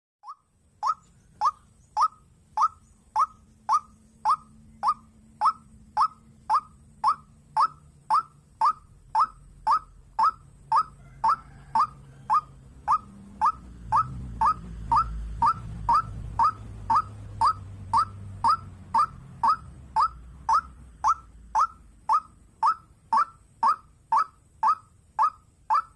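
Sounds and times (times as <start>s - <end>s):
waterhen calling: 0.2s - 25.9s
low hum: 0.3s - 25.9s.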